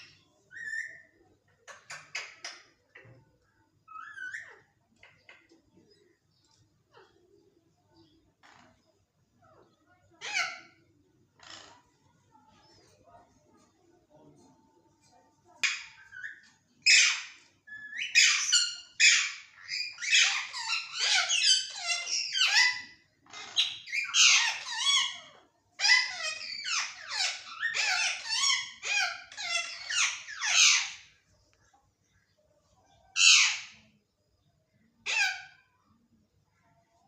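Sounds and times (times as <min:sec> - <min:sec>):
parrot calling and chattering: 0:00.0 - 0:13.4, 0:15.0 - 0:31.8, 0:32.9 - 0:34.0, 0:34.7 - 0:36.8.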